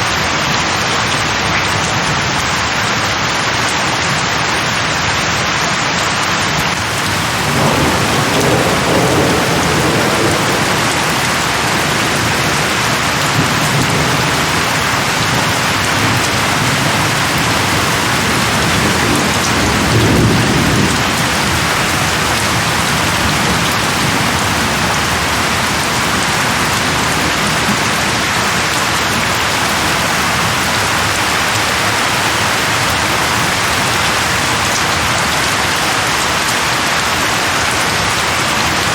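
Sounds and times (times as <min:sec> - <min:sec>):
heavy rain falling: 0:00.0 - 0:38.9
thunder rumbling: 0:06.8 - 0:34.7.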